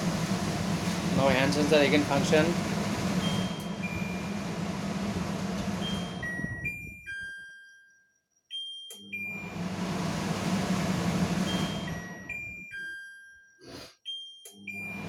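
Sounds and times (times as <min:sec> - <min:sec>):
range hood blower whooshing: 0:00.0 - 0:06.8, 0:09.3 - 0:12.5.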